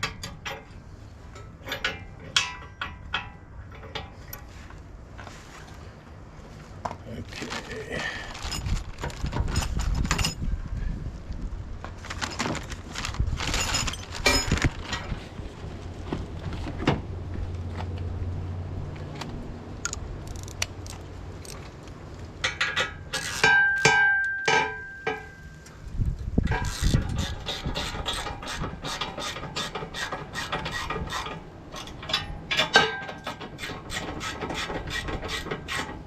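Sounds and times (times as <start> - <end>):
metal parts clinking: 1.3 - 4.5, 8.3 - 10.5, 13.4 - 15.2, 19.8 - 21.6, 22.4 - 25.4
ringing metal strikes: 23.4 - 25.6.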